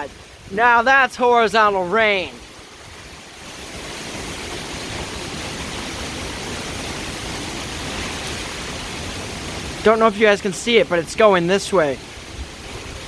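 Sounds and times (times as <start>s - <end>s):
heavy rain: 0.0s - 13.0s
strong wind gusts: 0.0s - 13.0s
wind rumbling on microphone: 12.0s - 13.0s.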